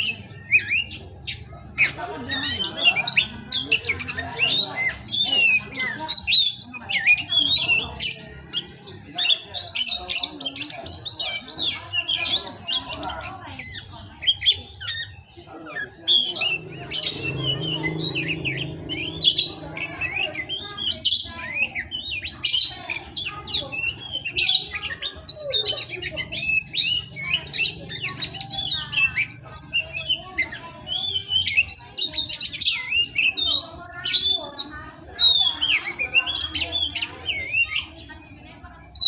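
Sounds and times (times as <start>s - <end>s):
songbird singing: 0.0s - 39.0s.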